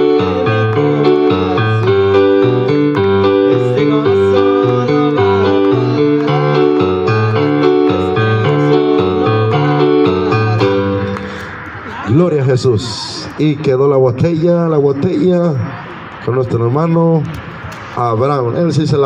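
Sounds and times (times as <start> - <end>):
upbeat piano tune: 0.0 - 11.9.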